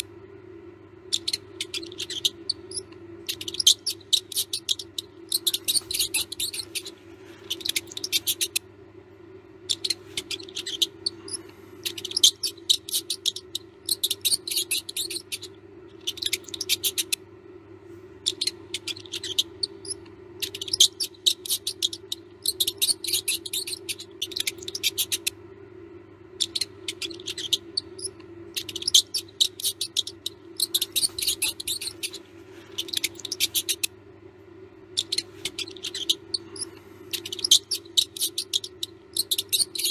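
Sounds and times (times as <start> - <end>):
steady low hum: 0.0 - 39.9
mouse squeaking: 1.0 - 8.7, 9.6 - 17.2, 18.2 - 25.4, 26.3 - 34.1, 34.8 - 39.9.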